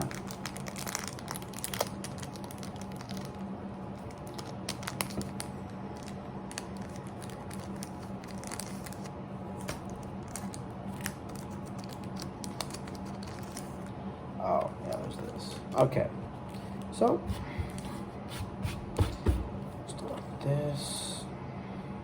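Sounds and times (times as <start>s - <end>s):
plastic wrapper crinkling and tearing: 0.0s - 13.9s.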